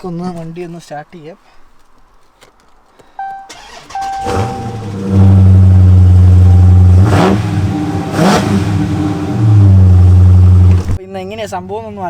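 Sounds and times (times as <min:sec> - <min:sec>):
dashboard chime: 0:03.2 - 0:08.5
car engine starting and revving: 0:03.5 - 0:11.0.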